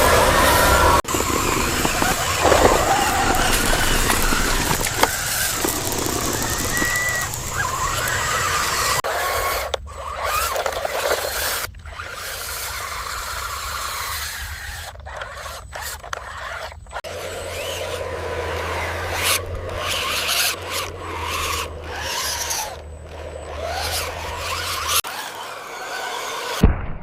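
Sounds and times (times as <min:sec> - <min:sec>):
steady scraping noise: 0:00.0 - 0:09.0
small electric motors whining: 0:00.0 - 0:26.6.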